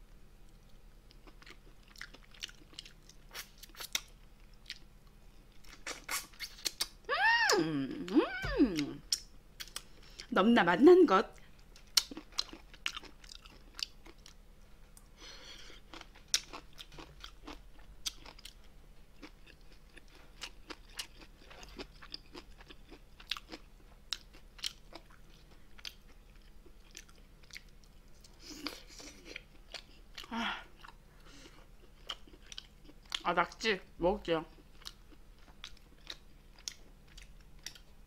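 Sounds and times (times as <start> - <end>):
wet crunchy chewing: 11.8 - 14.4.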